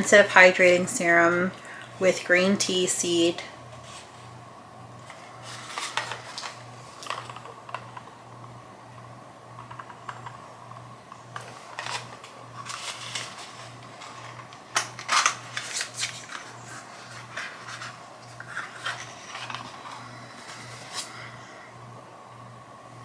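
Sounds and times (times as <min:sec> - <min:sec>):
packaging rustling and clicking: 0:05.0 - 0:08.1, 0:11.1 - 0:21.2.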